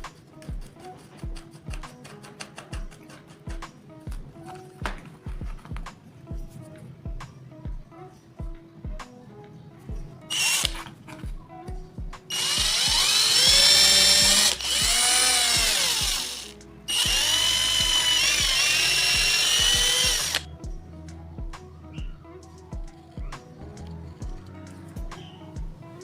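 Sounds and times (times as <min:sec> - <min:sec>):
background music with steady beat: 0:00.0 - 0:26.0
power tool motor whining: 0:10.3 - 0:10.9, 0:12.3 - 0:20.5.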